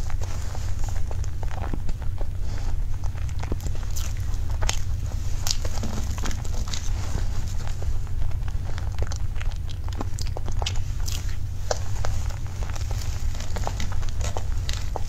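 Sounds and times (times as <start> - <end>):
low hum: 0.0 - 15.0
wet chewing and mouth sounds: 0.0 - 15.0.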